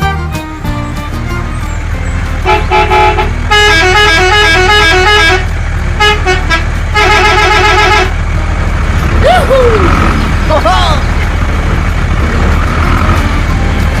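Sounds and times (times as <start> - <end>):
musical vehicle horn tune: 0.0 - 1.5, 2.2 - 8.4
low engine rumble: 0.0 - 14.0.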